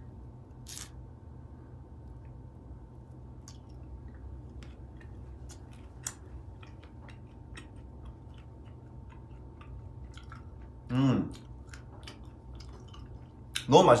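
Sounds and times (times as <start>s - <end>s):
steady low hum: 0.0s - 14.0s
person chewing: 3.4s - 13.7s.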